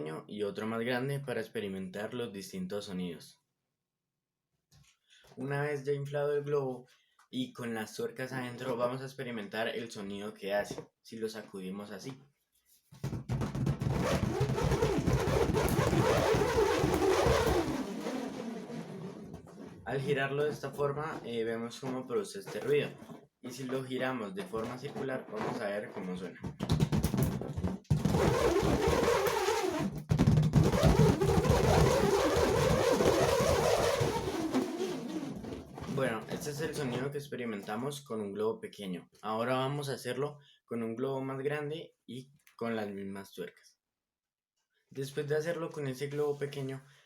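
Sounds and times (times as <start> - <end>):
nuts rattling inside balloon: 13.0 - 23.2, 24.4 - 37.0.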